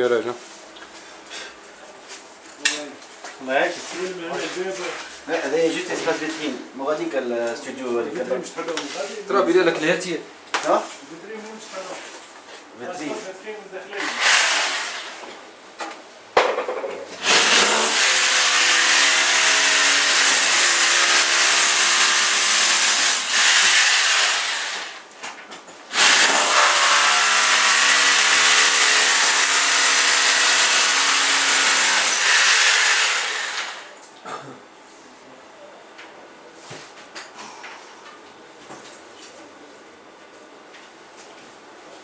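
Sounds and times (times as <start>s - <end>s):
saw blade cutting metal: 14.0s - 15.1s, 17.2s - 25.0s, 25.9s - 33.9s.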